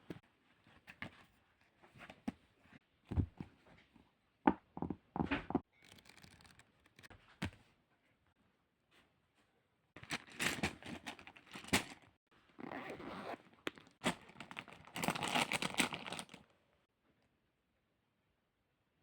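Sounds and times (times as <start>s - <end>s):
crinkly material crumpled: 10.0s - 16.5s.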